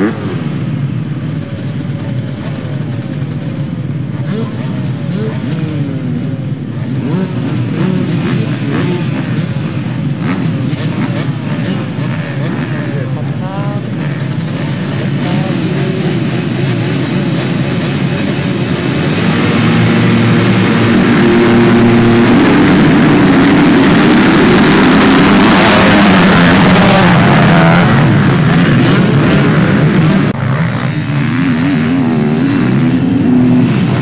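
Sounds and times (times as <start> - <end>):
motocross bike engines revving: 0.0 - 34.0.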